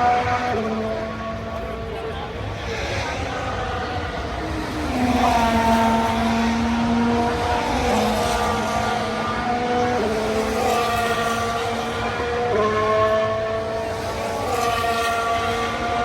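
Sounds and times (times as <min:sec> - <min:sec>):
race car engines at high revs: 0:00.0 - 0:16.0.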